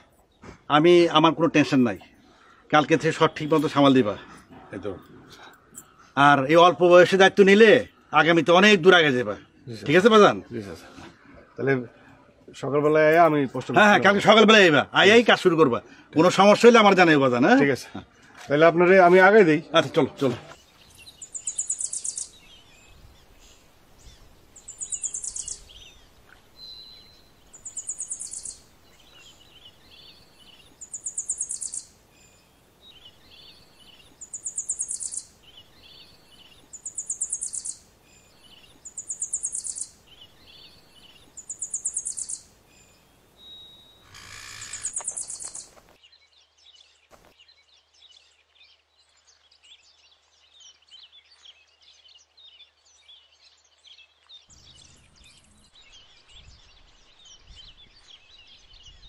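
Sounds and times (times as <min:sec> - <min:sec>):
soft bird chirps: 0:16.2 - 0:59.0
bird high pulsed trill: 0:20.9 - 0:22.6, 0:24.6 - 0:45.7.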